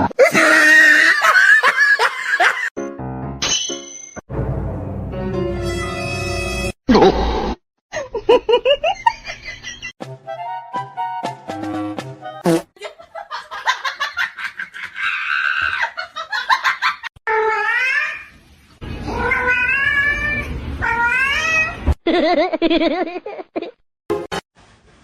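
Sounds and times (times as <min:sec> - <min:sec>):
cats meowing and yowling: 0:19.0 - 0:21.8.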